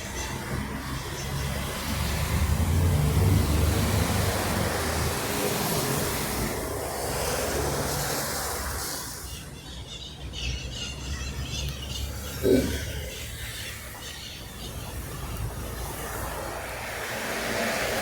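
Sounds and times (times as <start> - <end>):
rain and wet tyres hissing: 0.3 - 9.5, 12.0 - 18.0
vehicle engine passing: 1.5 - 9.2.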